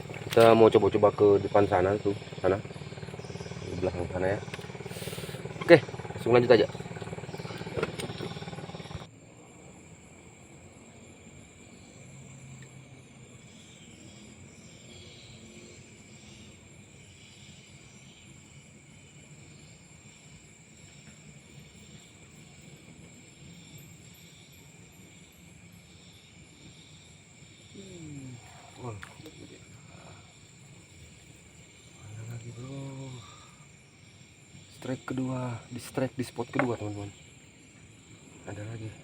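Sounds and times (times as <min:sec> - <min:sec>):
loud noise cut off: 0:00.0 - 0:09.1
crickets chirping: 0:00.0 - 0:39.0.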